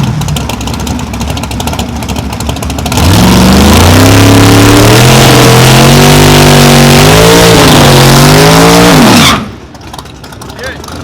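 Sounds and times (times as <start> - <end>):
racing engine accelerating hard: 2.8 - 9.5.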